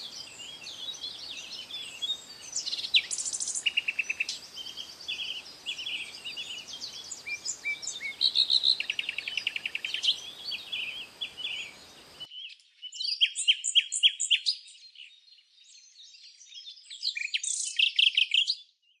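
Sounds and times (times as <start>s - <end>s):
low background hiss: 0.0s - 12.3s
songbirds singing: 0.0s - 19.0s.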